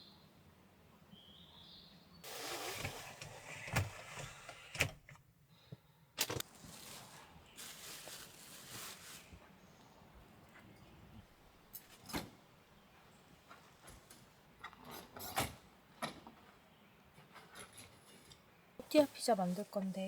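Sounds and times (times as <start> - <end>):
rustling handling noise: 6.2 - 10.9, 17.2 - 20.0.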